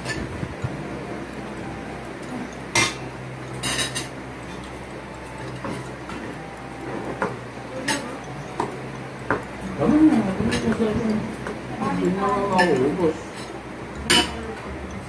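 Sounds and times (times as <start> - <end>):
low steady hum: 0.0 - 15.0
cutlery clinking on plates: 2.2 - 6.3, 12.2 - 14.7.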